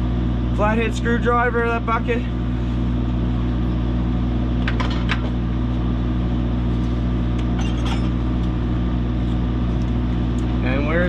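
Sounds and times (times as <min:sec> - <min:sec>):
metal tools clinking: 0:07.5 - 0:08.2.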